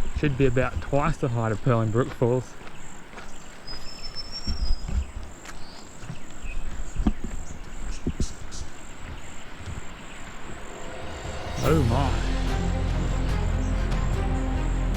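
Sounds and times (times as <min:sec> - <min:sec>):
insects chirping: 0:00.0 - 0:14.9
bird whistle: 0:03.7 - 0:04.9.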